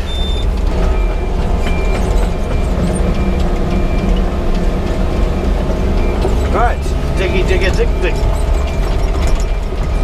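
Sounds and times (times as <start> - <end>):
faint repeating beep: 0.0 - 4.2
excavator diesel engine running: 0.0 - 10.0.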